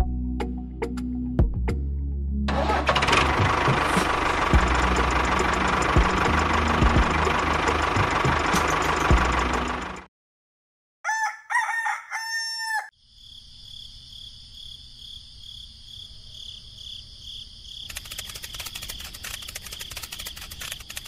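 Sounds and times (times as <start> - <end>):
machine noise: 2.5 - 10.0, 17.9 - 21.0
rooster crowing: 11.0 - 13.0
rattling: 17.9 - 21.0.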